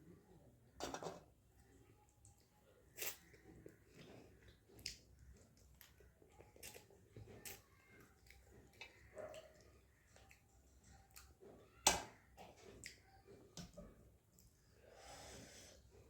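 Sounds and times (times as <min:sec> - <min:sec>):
person chewing food wetly: 0:02.1 - 0:14.7.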